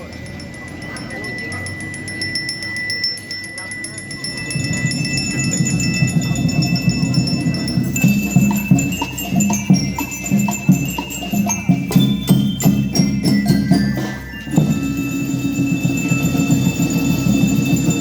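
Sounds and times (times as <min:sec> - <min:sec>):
metal bell notes: 0:00.0 - 0:18.0
sharp percussion strikes: 0:00.0 - 0:18.0
steady drum pattern: 0:04.9 - 0:18.0.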